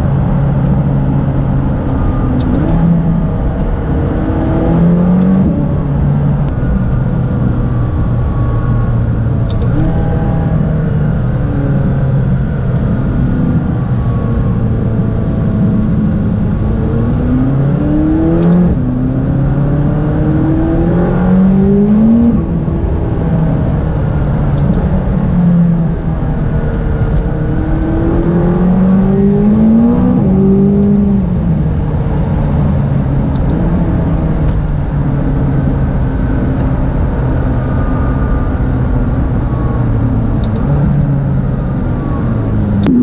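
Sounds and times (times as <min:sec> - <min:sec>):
sports car engine revving: 0:09.2 - 0:43.0.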